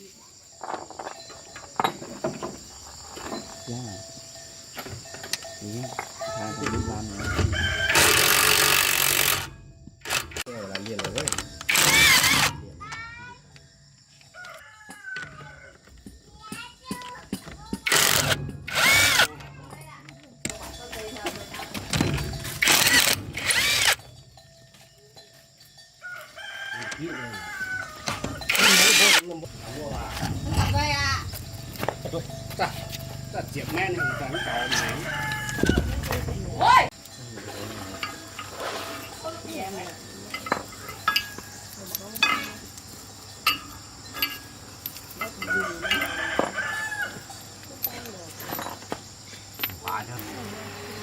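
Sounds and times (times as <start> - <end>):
hand tools clinking on metal: 0.5 - 51.0
handheld power tool running: 7.9 - 10.5, 11.6 - 12.6, 17.8 - 19.3, 22.6 - 24.0, 28.5 - 29.2.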